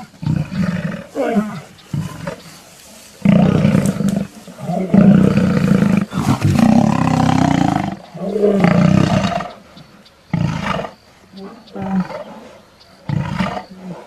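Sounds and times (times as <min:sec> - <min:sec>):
lions snarling and roaring: 0:00.0 - 0:14.0.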